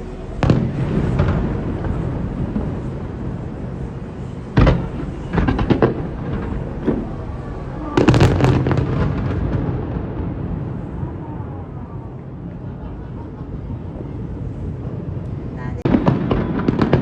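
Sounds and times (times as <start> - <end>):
fireworks bangs: 0.0 - 15.2, 15.8 - 17.0
low rumble: 0.0 - 16.4.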